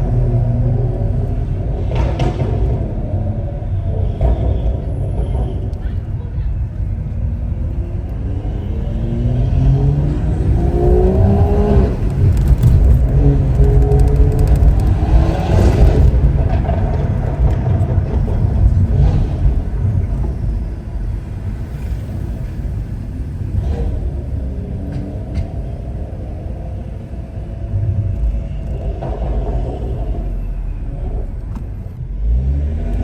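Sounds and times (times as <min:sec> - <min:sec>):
car engine accelerating hard: 0:07.6 - 0:20.5, 0:29.1 - 0:33.0.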